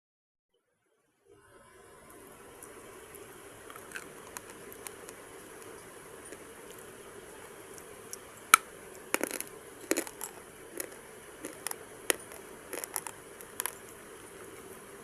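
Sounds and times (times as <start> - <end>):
brittle crunching crackles: 3.1 - 14.4.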